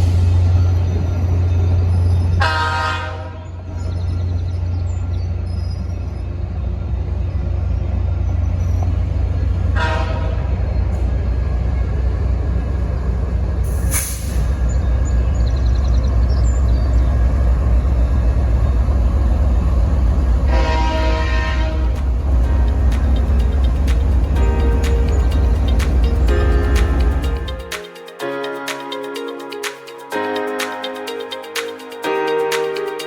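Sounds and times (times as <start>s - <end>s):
train rumbling: 0.0s - 33.0s
locomotive air horn blast: 2.4s - 3.4s, 9.8s - 10.5s, 20.5s - 23.0s.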